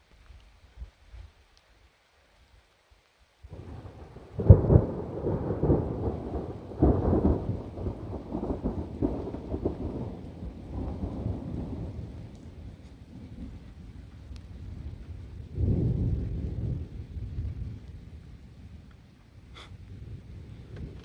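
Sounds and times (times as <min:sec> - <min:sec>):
thunder crack: 0:03.5 - 0:12.3
thunder rolling rumble: 0:03.5 - 0:18.8, 0:19.5 - 0:21.0.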